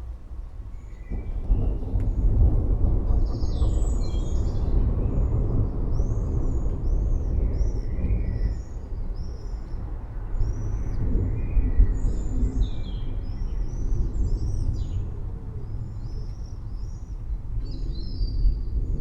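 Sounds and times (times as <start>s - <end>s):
thunder rumbling: 0.0s - 19.0s.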